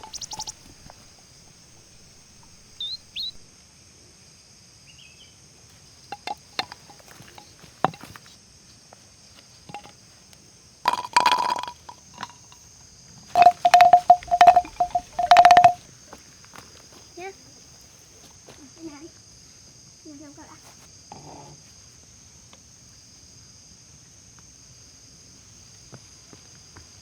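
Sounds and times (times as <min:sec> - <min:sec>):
bird chirps: 0:00.0 - 0:01.1, 0:01.8 - 0:03.5
clicks and knocks: 0:13.4 - 0:15.8
rough knocking burst: 0:13.4 - 0:15.8.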